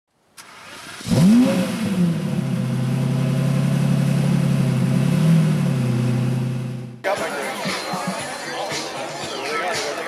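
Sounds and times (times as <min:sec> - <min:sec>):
sports car engine idling: 0:01.7 - 0:07.0.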